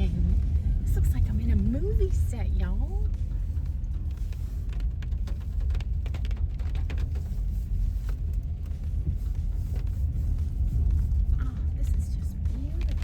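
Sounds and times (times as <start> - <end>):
car road rumble: 0.0 - 13.0.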